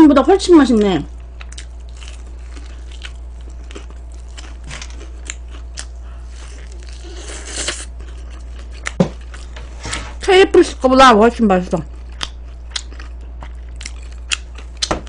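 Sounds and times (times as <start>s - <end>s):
steady low hum: 0.0s - 15.0s
crunching fried chicken: 0.8s - 9.6s, 11.8s - 15.0s.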